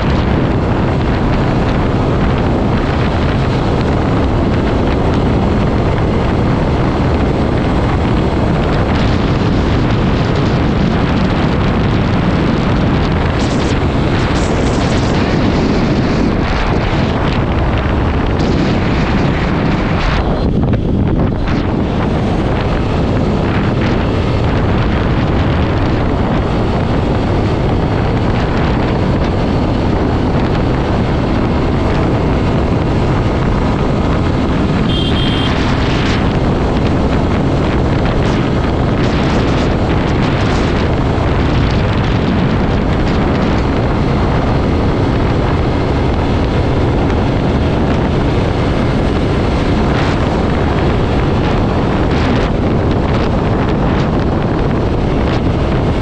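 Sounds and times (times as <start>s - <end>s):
motorcycle road noise: 0.0s - 56.0s
wind rushing over microphone: 0.0s - 56.0s
high double beep: 34.9s - 35.6s.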